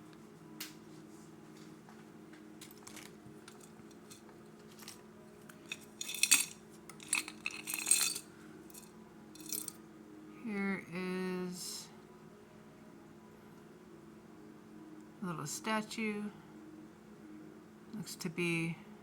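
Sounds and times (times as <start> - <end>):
metal jewelry clinking: 2.6 - 9.8.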